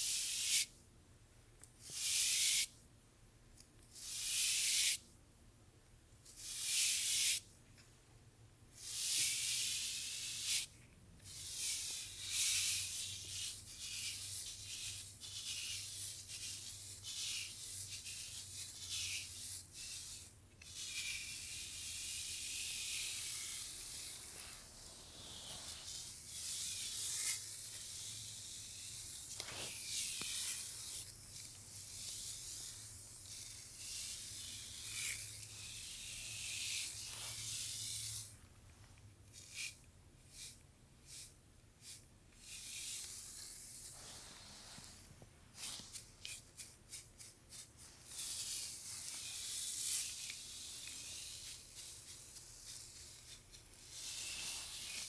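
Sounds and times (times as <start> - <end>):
brush strokes through hair: 20.9 - 38.3, 39.6 - 55.0.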